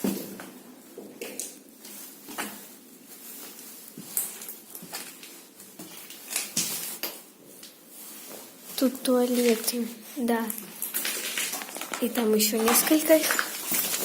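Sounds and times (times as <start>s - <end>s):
footsteps on gritty floor: 8.1s - 14.0s.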